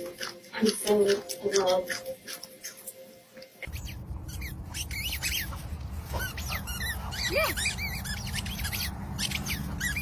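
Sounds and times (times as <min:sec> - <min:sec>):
steady low rumble: 0:03.7 - 0:10.0.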